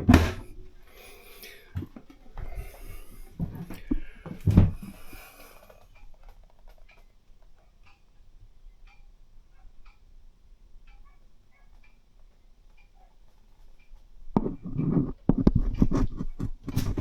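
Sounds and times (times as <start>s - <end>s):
dull knocks: 0.0s - 0.7s, 3.4s - 5.0s
faint ticks: 3.6s - 8.1s, 8.8s - 9.1s, 10.8s - 15.5s.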